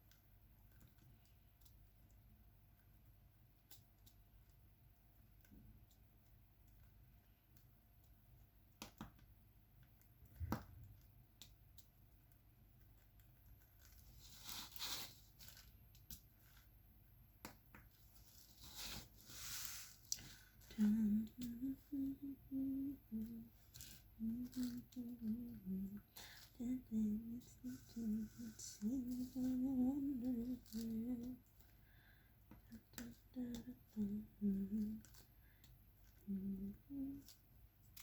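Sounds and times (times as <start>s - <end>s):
small clicks and taps: 0.0s - 14.0s
person humming a tune: 20.7s - 23.6s, 24.2s - 31.4s, 32.7s - 35.2s, 36.2s - 37.4s.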